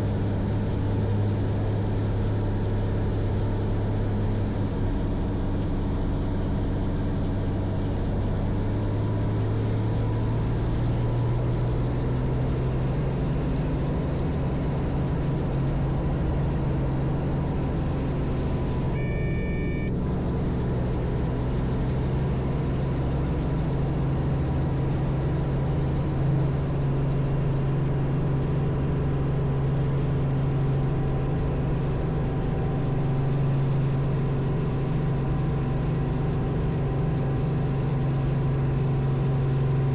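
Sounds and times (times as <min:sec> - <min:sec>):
helicopter engine and rotor drone: 0:00.0 - 0:39.9
brief high tone: 0:18.9 - 0:20.0.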